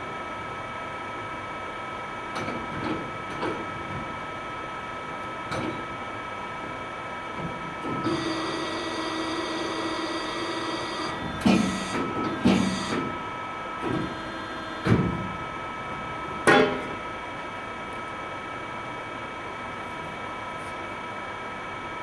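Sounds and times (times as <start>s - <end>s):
small motor running: 8.0s - 13.2s, 13.8s - 15.0s.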